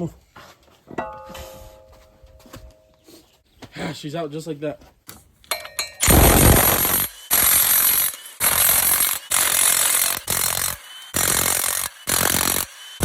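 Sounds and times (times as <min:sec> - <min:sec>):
impact wrench bursts: 0:06.0 - 0:13.0.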